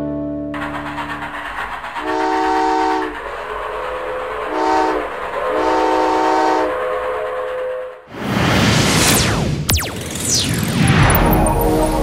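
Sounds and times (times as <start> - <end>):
train running noise: 0.6 - 8.1
steam locomotive whistle chord: 2.0 - 3.2, 4.4 - 6.9.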